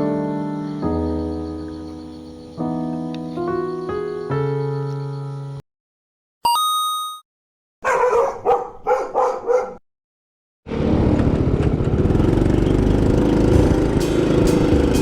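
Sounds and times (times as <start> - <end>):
dog barking: 7.8 - 9.8
motorcycle engine running: 10.7 - 15.0.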